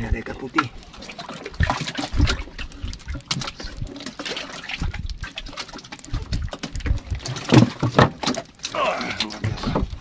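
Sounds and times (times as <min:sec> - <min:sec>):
wet fish slapping: 0:00.5 - 0:10.0.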